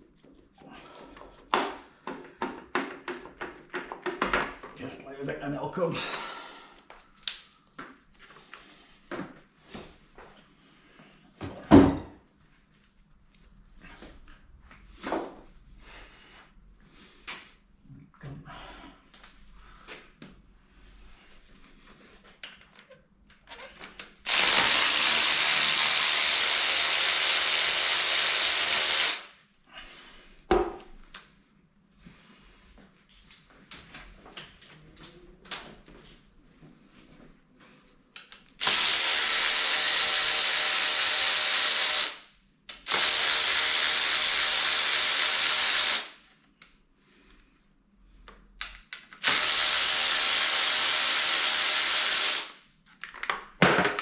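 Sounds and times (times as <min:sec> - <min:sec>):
power tool running: 0:24.3 - 0:29.4, 0:38.6 - 0:42.2, 0:42.8 - 0:46.2, 0:49.2 - 0:52.6.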